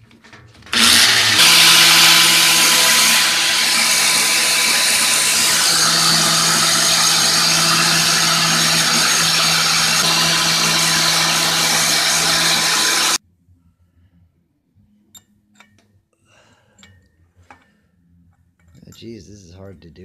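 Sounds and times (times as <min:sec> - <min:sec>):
electric power drill whining: 0:00.7 - 0:13.2.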